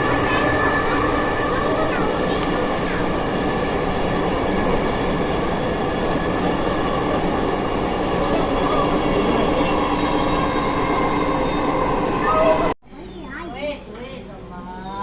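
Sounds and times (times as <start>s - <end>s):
train wheels rumbling on track: 0.0s - 12.8s.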